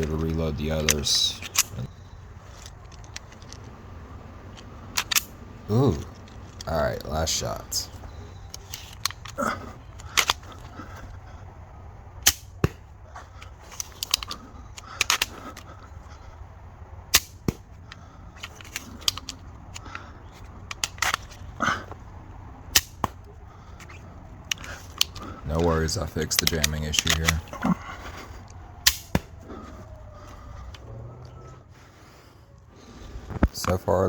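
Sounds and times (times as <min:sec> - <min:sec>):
plastic clacks: 0:00.0 - 0:03.8, 0:04.4 - 0:06.7, 0:07.9 - 0:11.2, 0:12.2 - 0:16.2, 0:17.2 - 0:22.0, 0:22.7 - 0:31.4
crossbow firing snaps: 0:12.2 - 0:12.7, 0:28.8 - 0:29.3.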